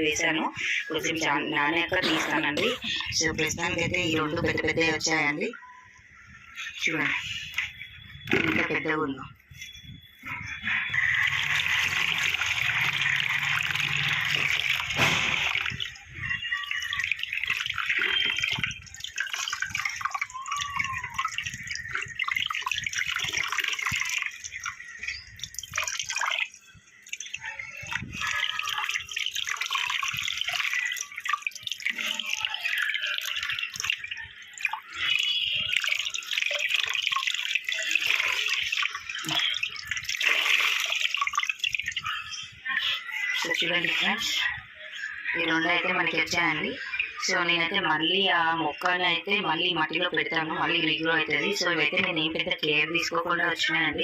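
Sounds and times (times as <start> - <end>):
water running and splashing: 10.5 - 44.3.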